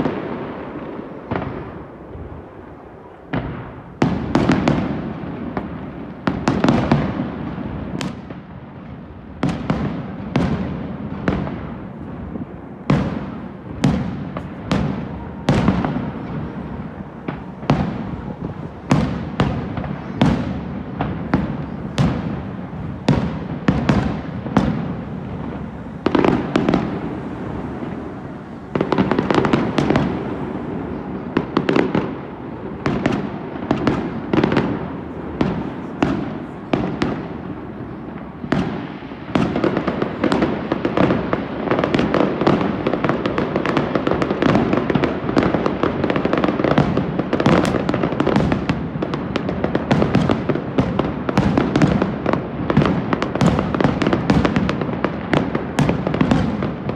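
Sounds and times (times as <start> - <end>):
fireworks bursting with bangs: 0.0 - 56.9.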